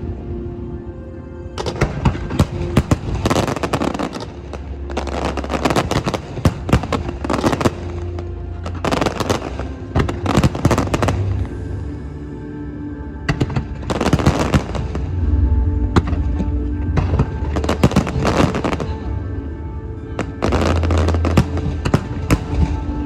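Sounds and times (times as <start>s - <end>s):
music playing: 0.0s - 23.0s
fireworks bursting and crackling: 8.7s - 11.4s, 13.4s - 15.1s, 17.0s - 18.9s.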